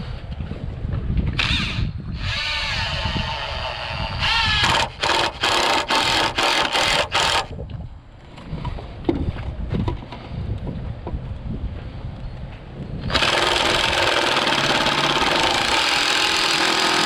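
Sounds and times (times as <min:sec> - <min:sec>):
power drill motor running: 0:01.4 - 0:07.5, 0:13.1 - 0:17.0.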